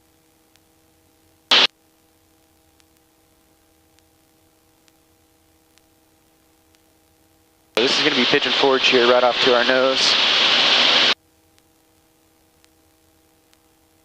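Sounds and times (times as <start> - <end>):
loud burst of static hiss: 1.5 - 1.7, 7.8 - 11.2
faint low intercom hum: 7.8 - 11.2.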